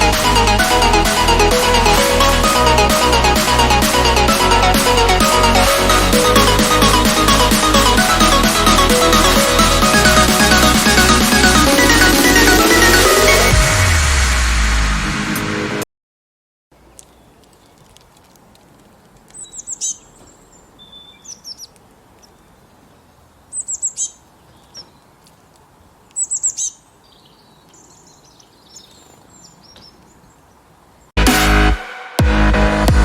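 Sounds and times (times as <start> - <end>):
loud electronic music: 0.0 - 15.8, 31.2 - 33.0
bird chirping: 17.0 - 18.0, 19.3 - 25.2, 26.0 - 31.1.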